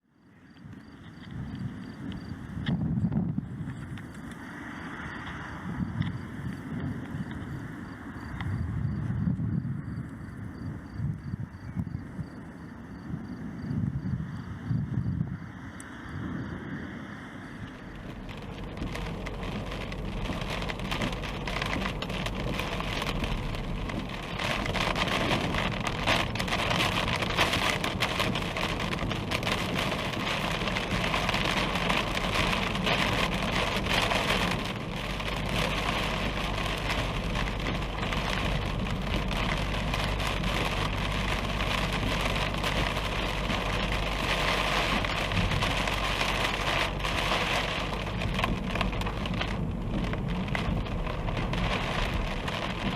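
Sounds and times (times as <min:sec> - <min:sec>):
heavy rain: 0:15.6 - 0:52.9
sharp raindrop hits: 0:17.6 - 0:52.9.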